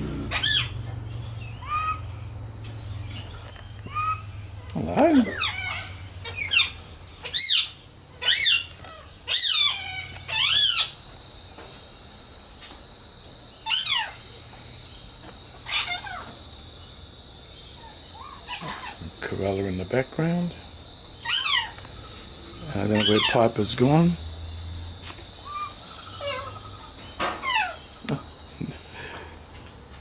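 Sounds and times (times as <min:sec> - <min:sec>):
birds calling harshly: 0:00.0 - 0:12.8, 0:13.5 - 0:29.5
insect drone: 0:00.0 - 0:30.0.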